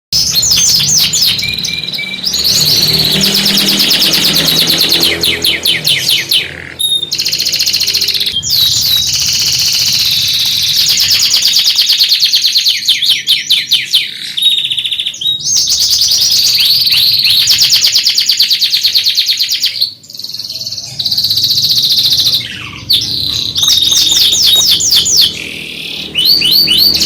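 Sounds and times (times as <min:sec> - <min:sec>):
canary singing trills: 0:00.2 - 0:27.0.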